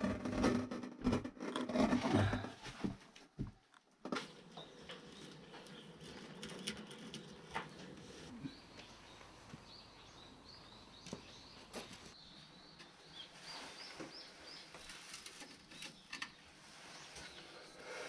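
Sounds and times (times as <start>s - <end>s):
small bird chirping: 4.5s - 17.6s.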